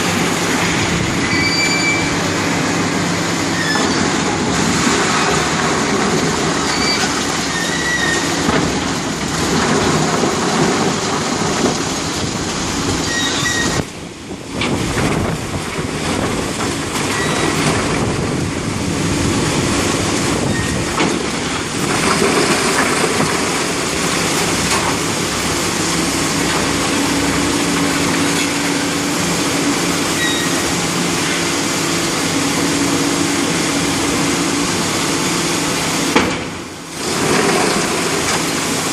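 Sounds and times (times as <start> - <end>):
demolition machinery din: 0.0 - 38.9
high metallic squeals: 1.2 - 2.4, 3.4 - 4.1, 6.6 - 8.4, 13.0 - 13.8, 20.4 - 20.9, 30.1 - 30.7.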